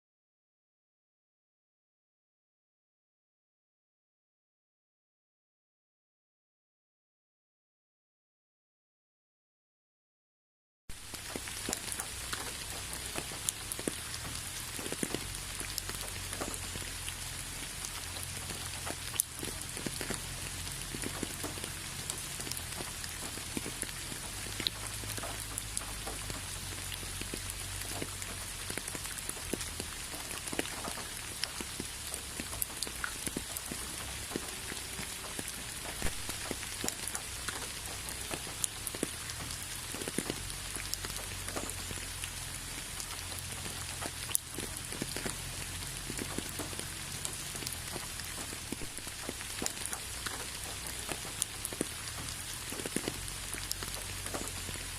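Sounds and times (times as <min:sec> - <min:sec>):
raindrops ticking sharply: 0:10.9 - 0:54.9
steady rain hiss: 0:10.9 - 0:54.9.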